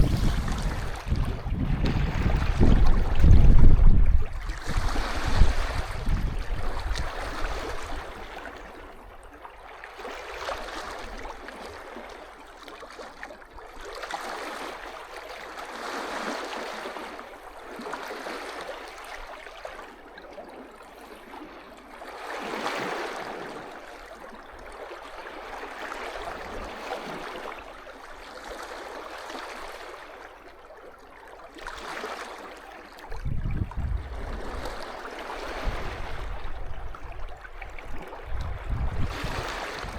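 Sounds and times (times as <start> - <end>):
wind buffeting microphone: 0.0 - 8.2, 33.1 - 39.9
waves lapping on beach: 0.0 - 39.9.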